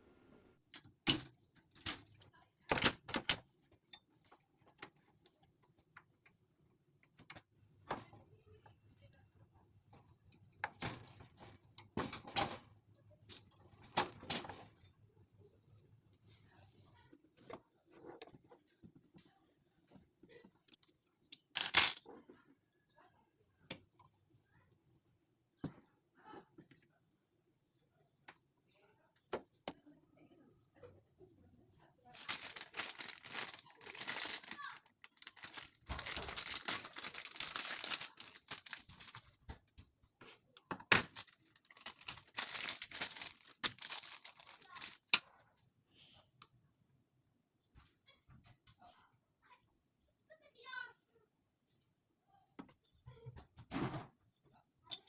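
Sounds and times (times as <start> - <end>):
rustling and crinkling: 32.1 - 45.1.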